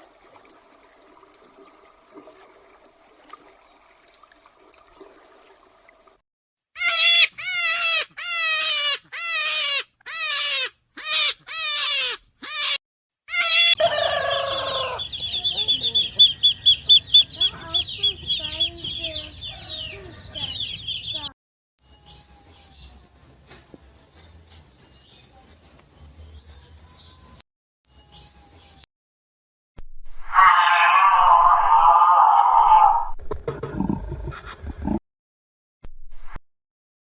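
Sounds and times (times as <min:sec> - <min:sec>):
chickens calling harshly: 0:06.8 - 0:21.2
chicks clucking and cheeping: 0:13.8 - 0:21.3.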